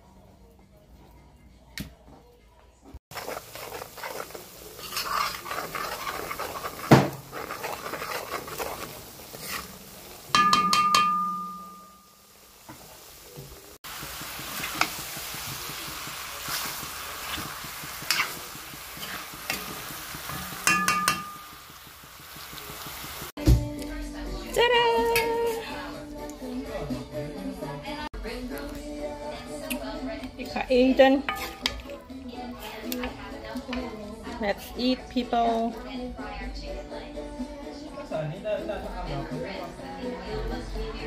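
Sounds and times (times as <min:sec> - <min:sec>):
food sizzling in a pan: 0:03.0 - 0:23.4, 0:30.9 - 0:35.0
utensil stirring and scraping: 0:03.1 - 0:10.5, 0:13.8 - 0:23.3, 0:31.2 - 0:33.8
utensil clinking against pan: 0:10.3 - 0:12.0, 0:17.4 - 0:21.8, 0:31.3 - 0:31.9
metal ringing: 0:10.3 - 0:12.2, 0:20.6 - 0:21.5.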